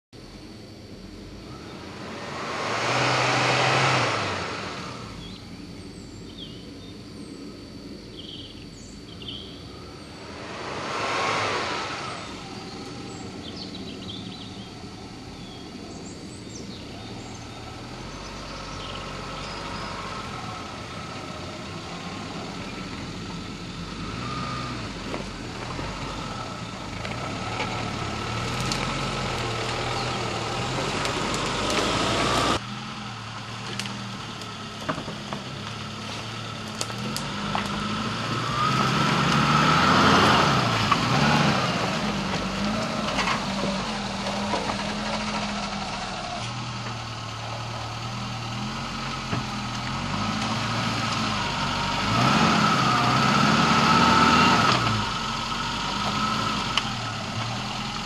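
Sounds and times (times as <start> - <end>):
off-road vehicle engine at low revs: 0.1 - 58.0
rushes of noise: 1.2 - 5.6, 9.5 - 15.1.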